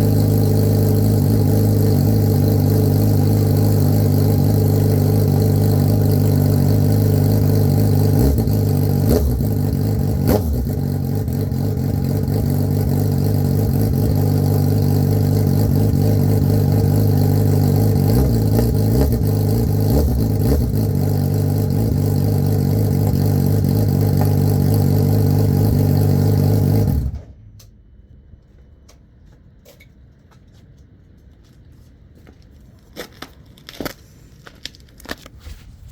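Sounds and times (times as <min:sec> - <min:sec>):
motorcycle engine idling: 0:00.0 - 0:27.2.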